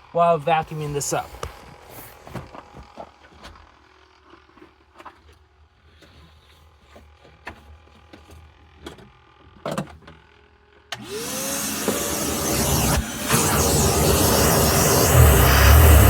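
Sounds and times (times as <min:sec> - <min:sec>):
vacuum cleaner motor whine: 0:10.9 - 0:16.0.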